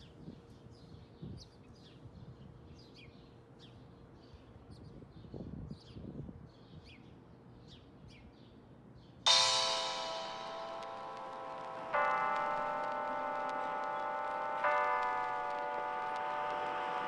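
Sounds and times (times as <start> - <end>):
loud bell-like chime: 9.3 - 17.0.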